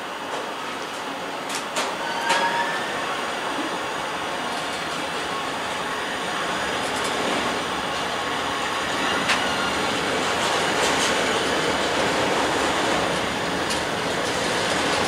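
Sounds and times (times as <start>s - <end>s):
freight wagons rolling on rails: 4.4s - 15.0s.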